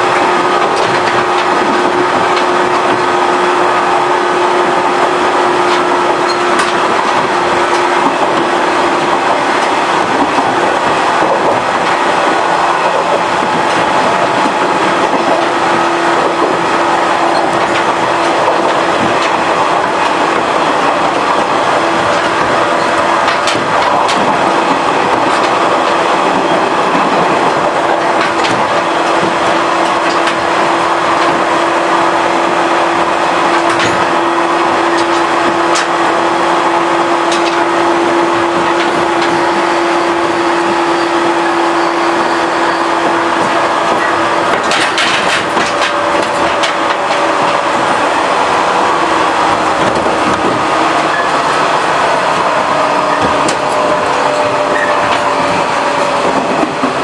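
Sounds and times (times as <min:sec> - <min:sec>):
sharp clicks from rails: 0:35.0 - 0:50.0
electric train running: 0:36.1 - 0:50.4
steady tone: 0:36.2 - 0:50.1.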